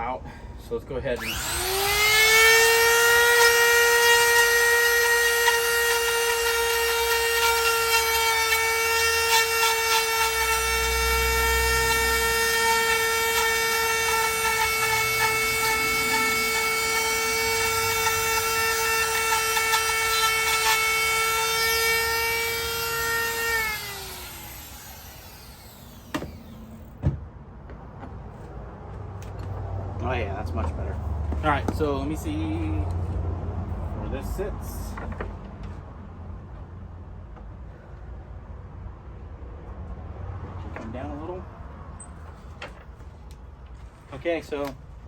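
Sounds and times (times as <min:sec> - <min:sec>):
wood router whining: 0:01.2 - 0:27.1.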